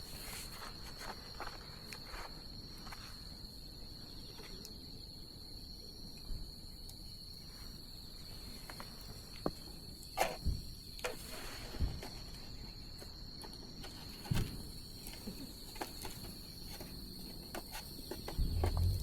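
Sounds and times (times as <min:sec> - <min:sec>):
insect high-pitched trill: 0:14.0 - 0:19.0.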